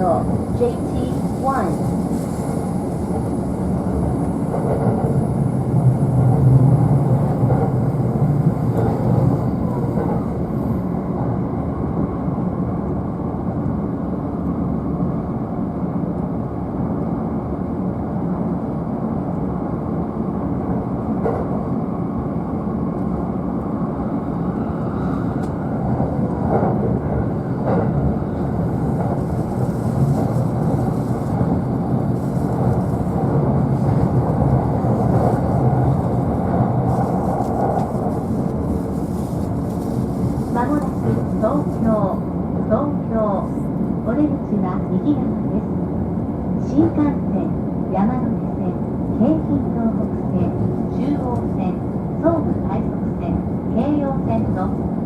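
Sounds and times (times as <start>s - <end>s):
train wheels rumbling on rail: 0.0s - 55.0s
rail joint clicks: 0.8s - 5.5s, 6.1s - 10.5s, 21.2s - 21.6s, 25.0s - 42.0s.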